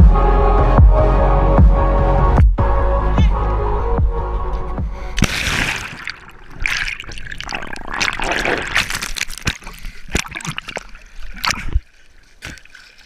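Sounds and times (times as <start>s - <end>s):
water splashing and trickling: 5.2s - 13.0s.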